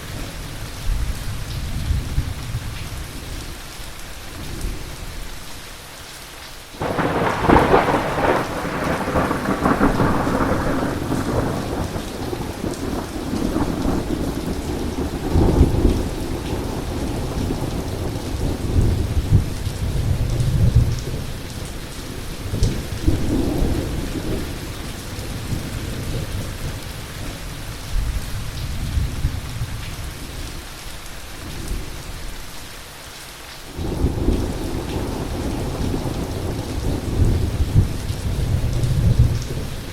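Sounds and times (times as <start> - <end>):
rain falling: 0.0 - 39.9
thunder clap and rumble: 6.8 - 30.3, 33.7 - 39.9.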